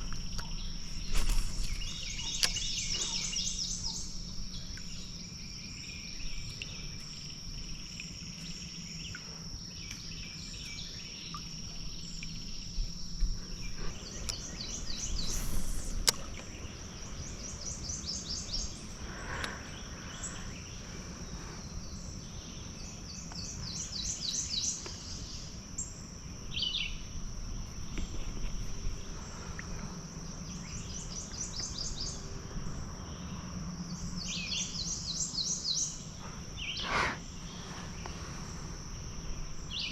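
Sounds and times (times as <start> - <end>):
bird singing trilled phrases: 0.0 - 7.3
high insect drone: 0.0 - 39.9.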